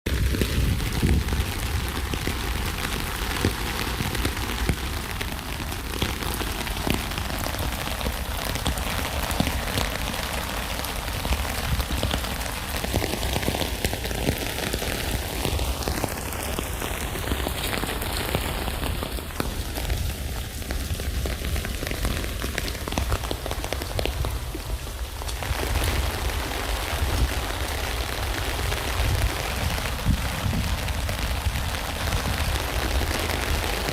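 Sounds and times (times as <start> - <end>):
rain pattering on a tent: 0.0 - 33.9.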